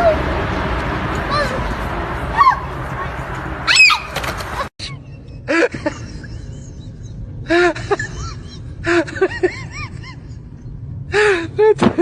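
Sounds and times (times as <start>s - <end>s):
steady low background noise: 4.9s - 12.0s.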